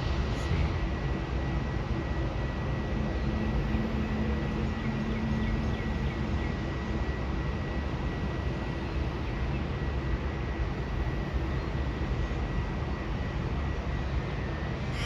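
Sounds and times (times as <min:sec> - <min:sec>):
low rumble: 0:00.0 - 0:01.4
thin high whine: 0:00.0 - 0:05.2, 0:14.8 - 0:15.0
faint lower hum: 0:00.0 - 0:15.0.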